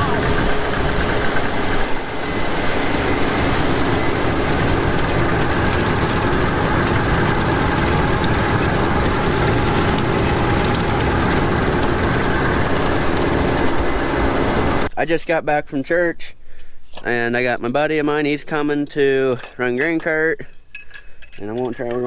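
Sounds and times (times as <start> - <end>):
combine harvester running: 0.0 - 14.9.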